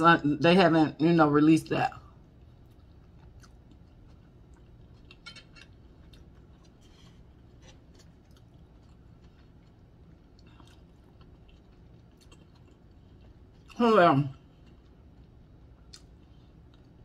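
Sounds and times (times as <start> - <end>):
faint chewing with mouth clicks: 2.1 - 17.0.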